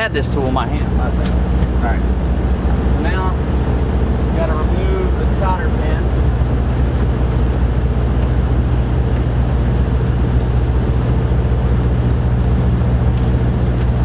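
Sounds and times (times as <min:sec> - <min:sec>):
low mechanical drone: 0:00.0 - 0:14.0.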